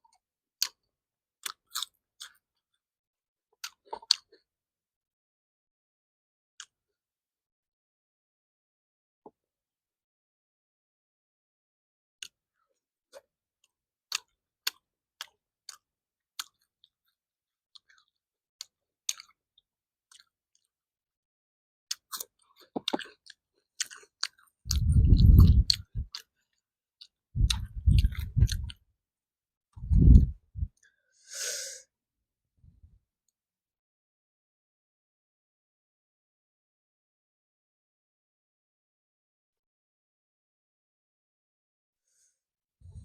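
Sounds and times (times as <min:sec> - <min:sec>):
mouth clicks and crunches: 0:01.4 - 0:02.4, 0:21.9 - 0:26.3, 0:27.0 - 0:28.8
muffled chewing: 0:14.1 - 0:16.9, 0:21.9 - 0:28.8
short breathy hiss: 0:31.2 - 0:31.8.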